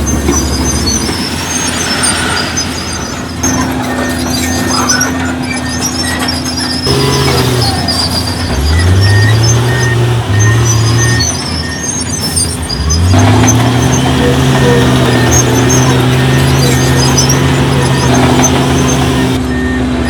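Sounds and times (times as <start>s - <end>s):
faint high squeaks: 0.0s - 19.7s
diesel engine revving: 0.0s - 20.0s.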